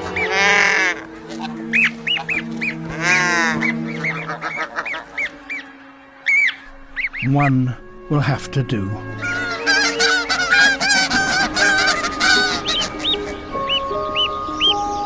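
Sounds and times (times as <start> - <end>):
bird chirping: 0.0 - 8.1, 9.0 - 15.0
harsh honking squawks: 9.2 - 13.5.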